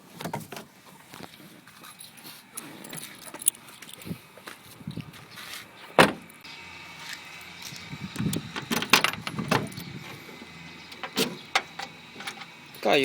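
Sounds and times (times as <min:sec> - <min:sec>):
keys jangling: 0:02.0 - 0:04.2.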